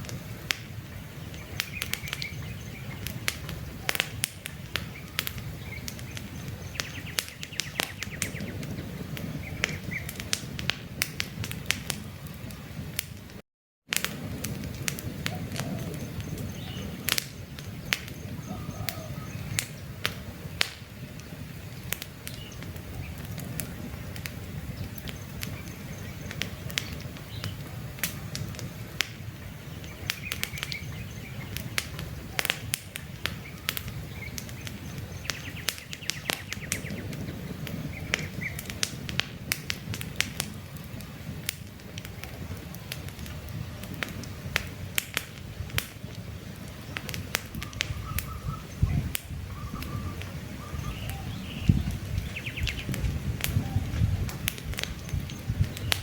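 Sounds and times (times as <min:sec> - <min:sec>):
campfire crackling and popping: 0:00.0 - 0:56.0
faint bird chirps: 0:17.8 - 0:19.6, 0:47.6 - 0:52.9.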